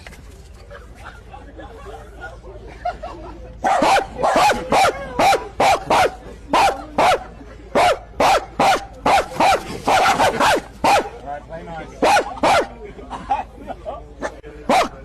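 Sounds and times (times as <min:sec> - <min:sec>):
dog barking: 0:03.6 - 0:11.1, 0:12.0 - 0:12.7, 0:14.7 - 0:15.0.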